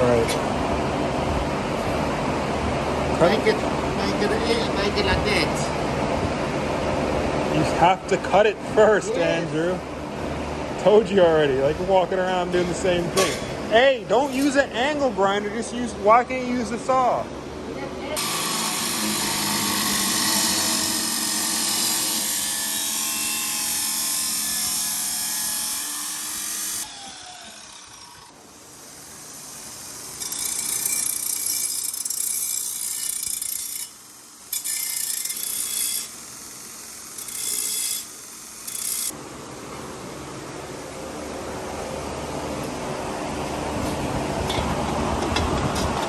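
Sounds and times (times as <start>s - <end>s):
power tool cutting steel tubing: 18.2s - 39.1s.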